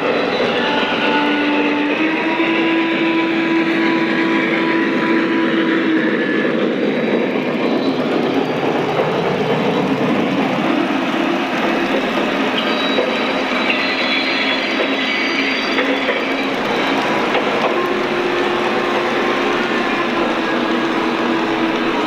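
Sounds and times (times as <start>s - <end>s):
model train rumbling on track: 0.0s - 22.0s
steam sound effects: 9.6s - 22.0s.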